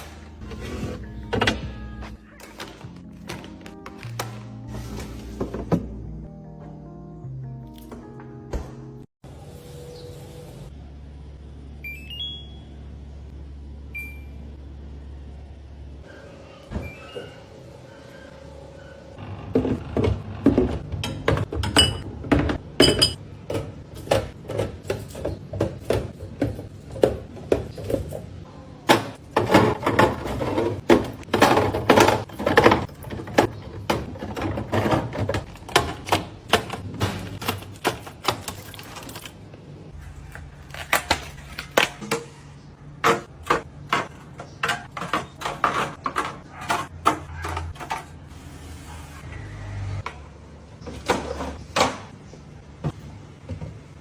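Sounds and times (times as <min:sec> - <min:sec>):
plastic containers clattering: 0:19.5 - 0:39.4, 0:40.0 - 0:48.3.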